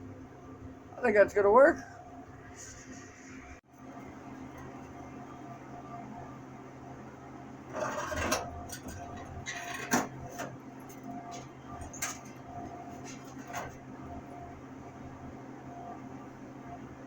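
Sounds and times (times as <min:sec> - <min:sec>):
steady hum: 0:00.0 - 0:17.0
scraping: 0:07.7 - 0:10.6.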